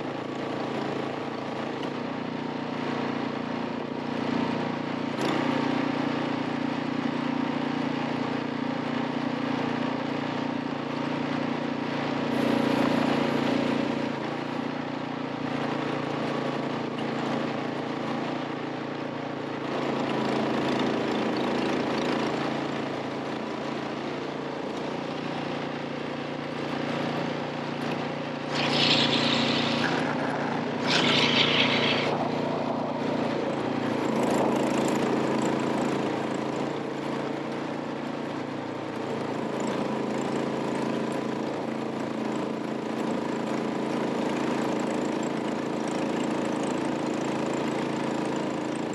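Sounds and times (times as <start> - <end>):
vehicle engine running: 19.6 - 42.6
hissing bursts: 28.5 - 34.6.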